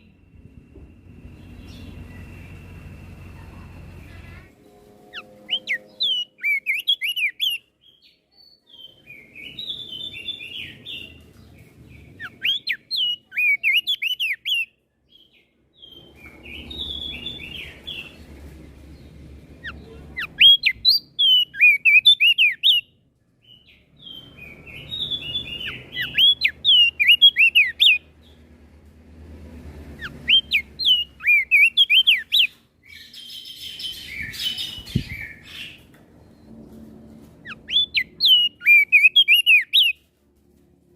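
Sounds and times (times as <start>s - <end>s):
bird singing whistled notes: 5.0s - 11.2s, 11.9s - 18.2s, 19.6s - 28.0s, 30.0s - 36.5s, 37.4s - 40.0s.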